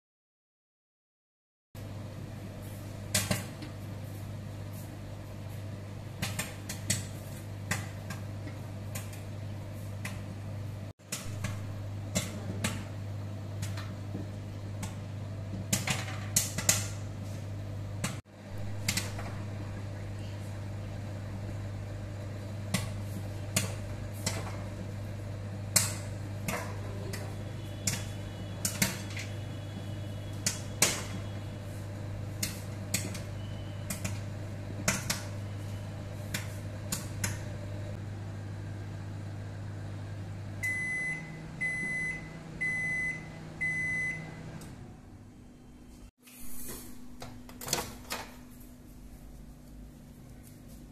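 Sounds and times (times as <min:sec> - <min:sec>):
microwave oven humming: 0:01.8 - 0:50.9
popcorn popping: 0:06.2 - 0:09.3, 0:11.1 - 0:13.0, 0:14.8 - 0:17.0, 0:25.6 - 0:29.3, 0:30.3 - 0:31.2, 0:32.4 - 0:35.4, 0:36.3 - 0:37.5
microwave beeps: 0:32.6 - 0:36.2, 0:40.5 - 0:46.1.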